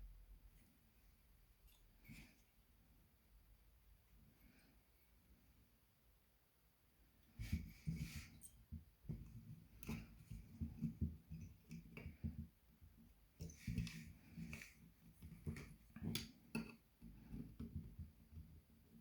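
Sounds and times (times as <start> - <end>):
small clicks and light knocks: 8.4 - 18.9.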